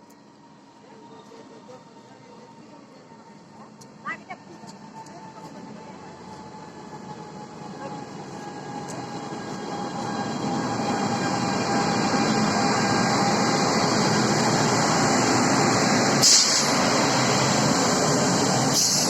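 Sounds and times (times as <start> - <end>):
train rumble: 0.0 - 19.0
train hiss: 11.6 - 19.0.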